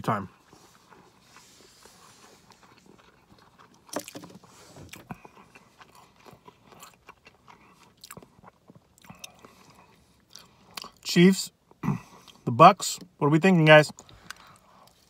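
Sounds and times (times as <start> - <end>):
close-up chewing: 0.1 - 12.5, 13.9 - 15.0
biting into sandwich: 0.4 - 11.0.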